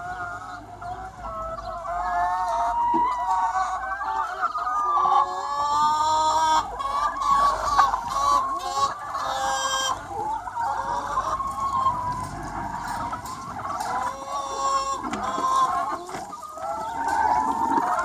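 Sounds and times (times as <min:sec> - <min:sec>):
chickens clucking and calling: 0:00.0 - 0:18.0.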